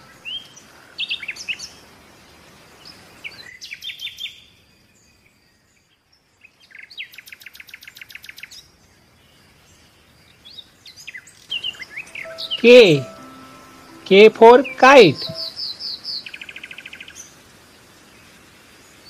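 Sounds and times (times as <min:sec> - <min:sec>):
short high bird chirps: 0:12.0 - 0:15.5.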